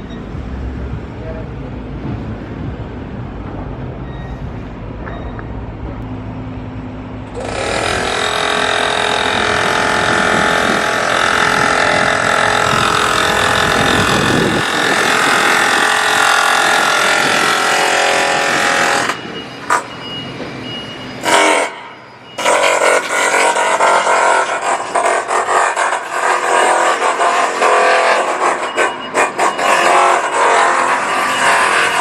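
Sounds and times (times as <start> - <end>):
low engine rumble: 0.0 - 17.6
harsh high machine noise: 3.9 - 32.0.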